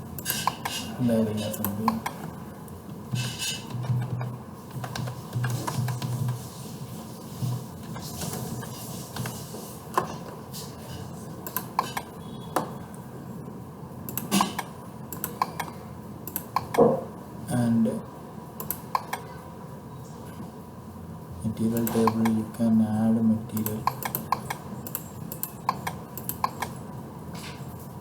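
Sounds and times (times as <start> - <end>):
mouse and keyboard clicks: 23.6 - 26.8.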